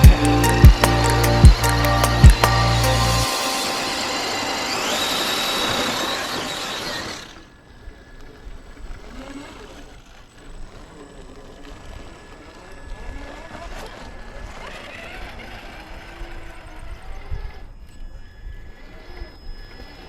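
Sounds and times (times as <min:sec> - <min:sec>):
loud hiss: 0:00.0 - 0:07.1
small electric motor whirring: 0:00.0 - 0:20.0.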